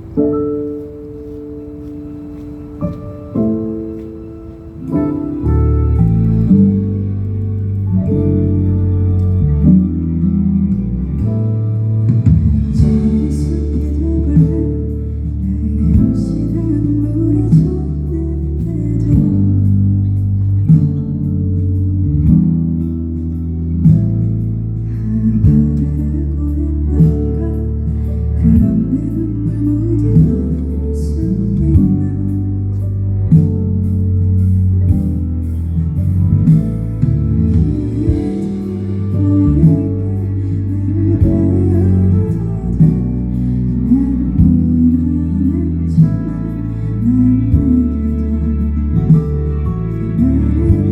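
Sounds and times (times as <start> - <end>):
acoustic guitar band music: 0.0 - 50.9
bass line: 4.6 - 50.9
person singing: 12.3 - 20.3, 24.8 - 33.6, 37.4 - 50.9.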